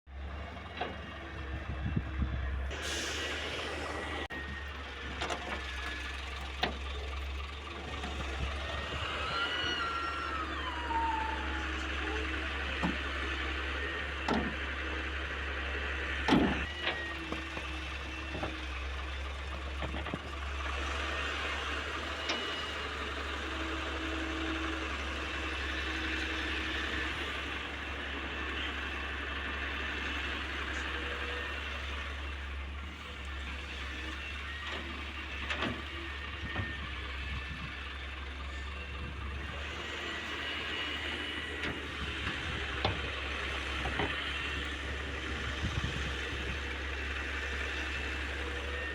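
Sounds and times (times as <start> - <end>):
excavator diesel engine running: 0.1 - 48.9
thin whining tones: 7.9 - 18.8.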